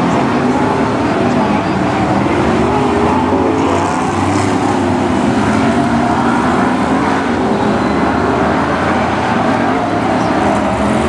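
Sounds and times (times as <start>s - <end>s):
stock car engines running: 0.0s - 11.0s.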